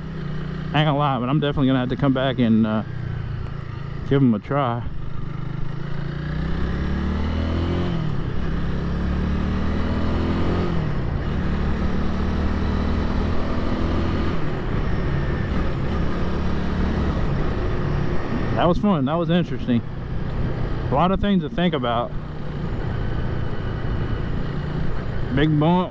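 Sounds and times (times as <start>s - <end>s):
motorcycle engine accelerating: 0.0s - 25.9s
wind and road noise: 0.0s - 25.9s.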